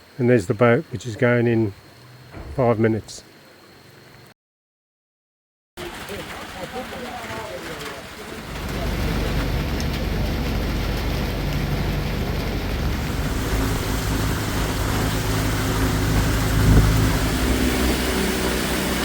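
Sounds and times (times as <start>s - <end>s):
boat engine running: 1.4s - 4.2s, 6.0s - 19.0s
rush of water wind or rain: 5.8s - 19.0s.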